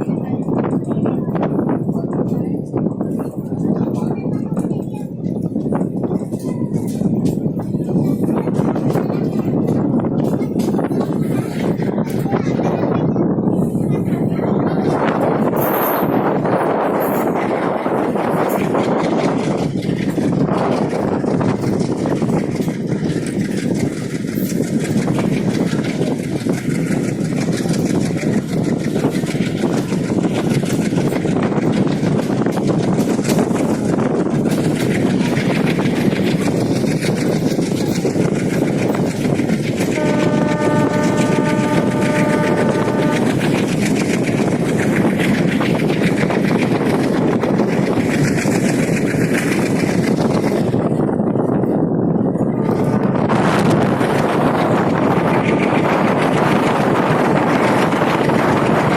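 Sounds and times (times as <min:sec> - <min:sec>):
rapid wheel clatter: 0:00.0 - 0:12.9, 0:13.5 - 0:58.9
train rumbling on rails: 0:00.0 - 0:58.9
train horn: 0:39.9 - 0:43.6.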